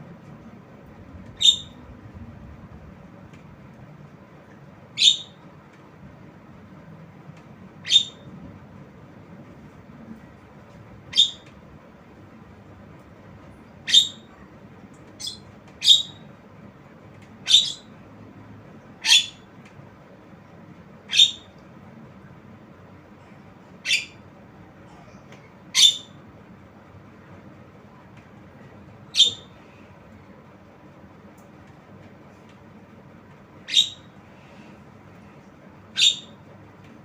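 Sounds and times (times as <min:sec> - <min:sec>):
myna high-pitched calls: 0:01.3 - 0:01.9, 0:05.0 - 0:05.4, 0:07.8 - 0:08.3, 0:11.1 - 0:11.5, 0:13.8 - 0:14.4, 0:15.2 - 0:16.3, 0:17.4 - 0:17.9, 0:19.0 - 0:19.5, 0:21.1 - 0:21.6, 0:23.8 - 0:24.2, 0:25.7 - 0:26.2, 0:29.1 - 0:29.6, 0:33.6 - 0:34.2, 0:35.9 - 0:36.4.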